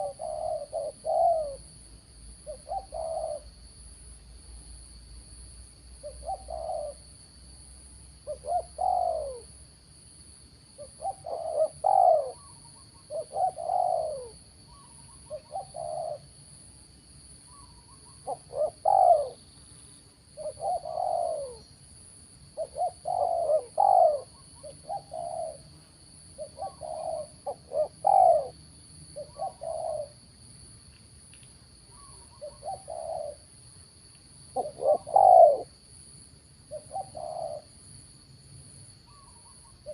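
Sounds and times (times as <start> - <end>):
dove cooing: 0.0 - 1.7, 2.4 - 3.5, 6.0 - 7.1, 8.2 - 9.6, 10.8 - 16.4, 17.5 - 19.5, 20.3 - 21.7, 22.5 - 25.7, 26.4 - 28.6, 29.2 - 30.2, 31.9 - 33.5, 34.5 - 35.8, 36.7 - 37.8, 39.1 - 39.9.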